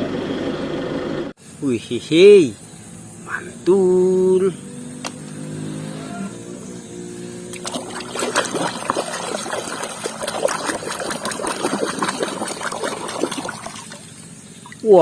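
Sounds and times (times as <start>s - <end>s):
water splashing in a tub: 7.5s - 15.0s.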